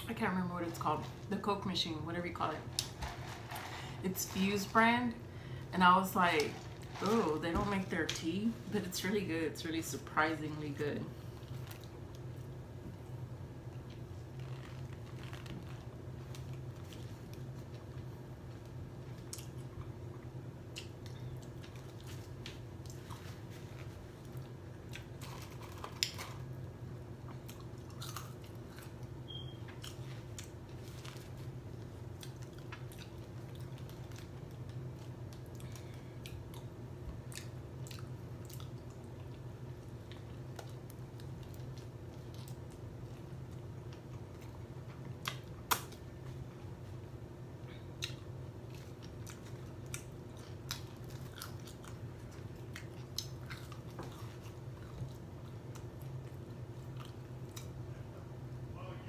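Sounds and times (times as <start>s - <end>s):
steady low hum: 0.0s - 59.0s
person chewing burger: 19.2s - 45.8s, 47.8s - 57.8s.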